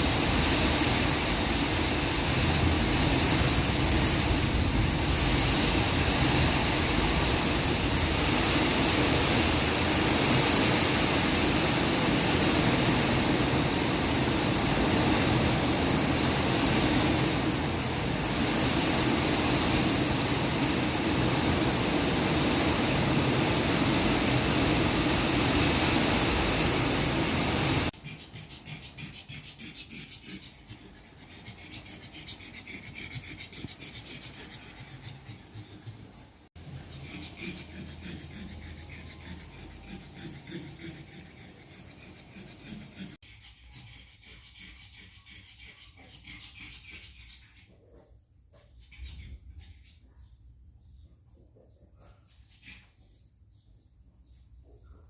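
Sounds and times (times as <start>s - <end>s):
storm wind: 0.0s - 27.9s
heavy rain: 15.0s - 27.9s.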